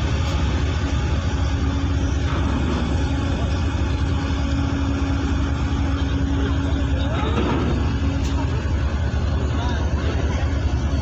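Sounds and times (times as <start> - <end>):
ferry engines rumbling: 0.0 - 11.0.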